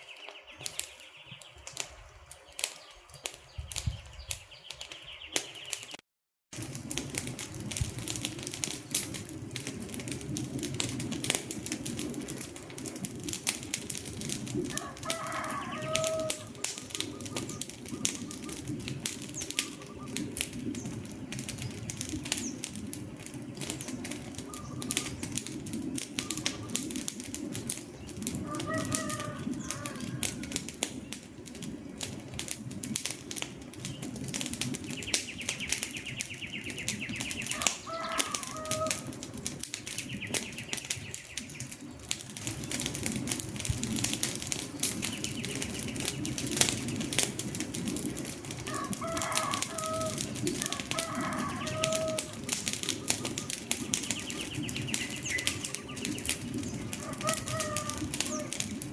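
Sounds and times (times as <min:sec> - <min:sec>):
wood fire crackling: 0:00.0 - 0:58.9
low rumble of flame: 0:00.2 - 0:05.9, 0:06.5 - 0:58.9
short bird calls: 0:51.0 - 0:58.8.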